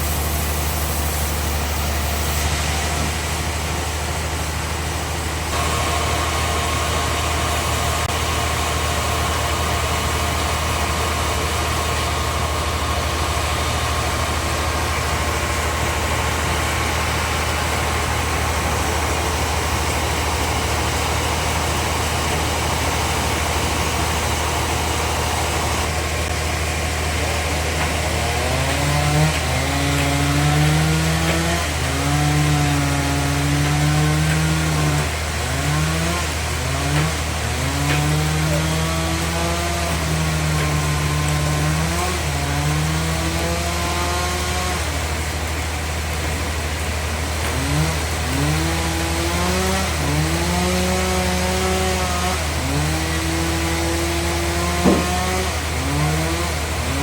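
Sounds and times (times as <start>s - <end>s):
sawmill machinery droning and whining: 0.0s - 57.0s.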